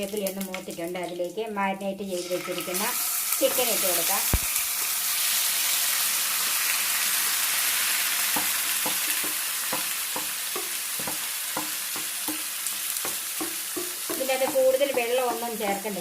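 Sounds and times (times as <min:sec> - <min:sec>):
chicken sizzling in a pan: 0:00.0 - 0:01.3, 0:02.0 - 0:16.0
utensil knocking against pan: 0:08.3 - 0:15.6.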